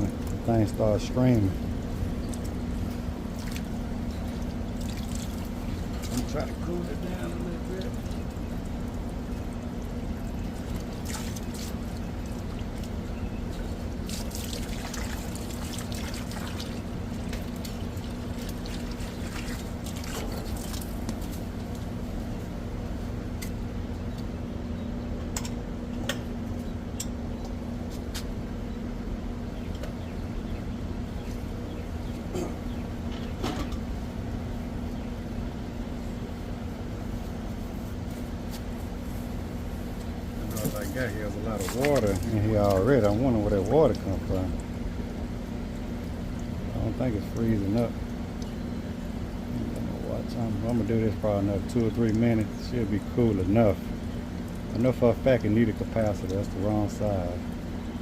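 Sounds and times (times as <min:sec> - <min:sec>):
air conditioner unit humming: 0:00.0 - 0:58.0
water pouring and splashing: 0:01.8 - 0:21.9, 0:40.4 - 0:45.3, 0:49.6 - 0:57.6.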